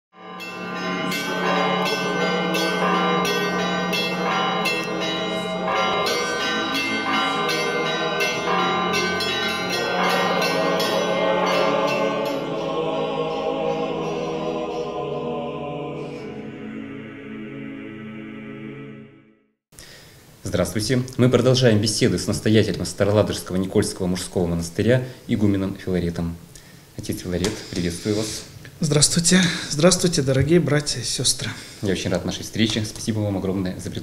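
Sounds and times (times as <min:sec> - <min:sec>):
church bells ringing: 0:00.1 - 0:15.6.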